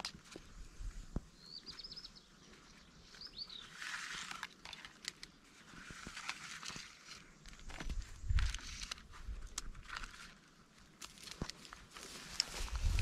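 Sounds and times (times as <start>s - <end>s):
small bird chirping: 1.4s - 4.1s
rustling: 2.5s - 13.0s.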